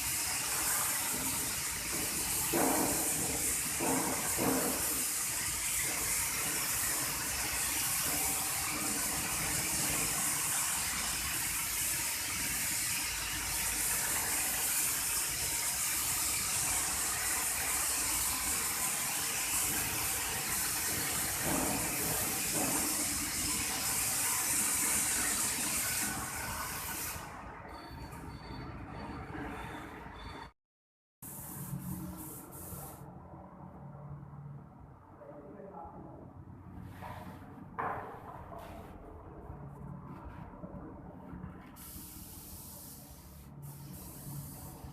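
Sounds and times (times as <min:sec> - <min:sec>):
spray gun hissing: 0:00.0 - 0:27.2, 0:31.2 - 0:33.0, 0:41.8 - 0:44.9.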